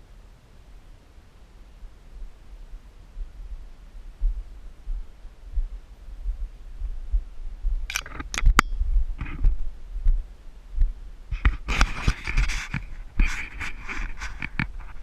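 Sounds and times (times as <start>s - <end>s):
dull low thumps: 1.8s - 11.7s
sharp clicks or scrapes: 7.9s - 9.5s, 11.3s - 15.0s
rustling: 11.3s - 15.0s.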